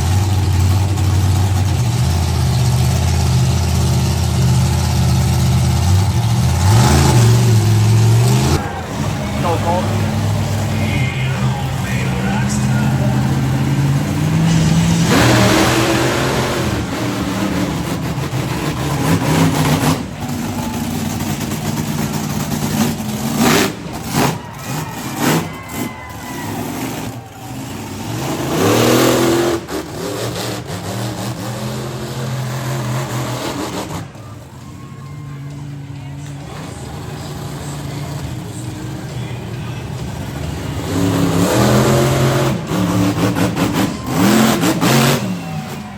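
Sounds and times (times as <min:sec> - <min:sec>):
monster truck engine revving: 0:00.0 - 0:45.9
sharp bangs: 0:06.8 - 0:30.9.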